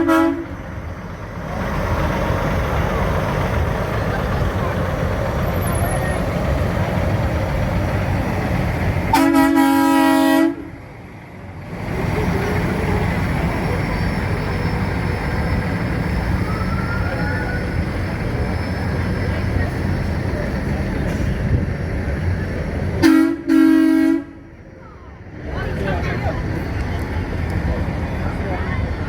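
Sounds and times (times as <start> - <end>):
vehicle horn blast: 0.0 - 0.5, 9.1 - 10.7, 23.0 - 24.4
crowd noise: 0.0 - 9.4, 10.4 - 29.0.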